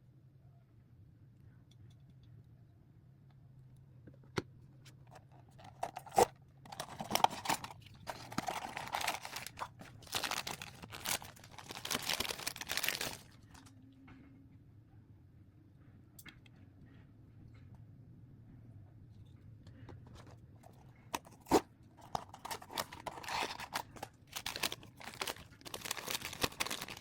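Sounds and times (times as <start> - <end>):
plastic packaging crinkling: 5.1 - 13.7, 20.1 - 27.0.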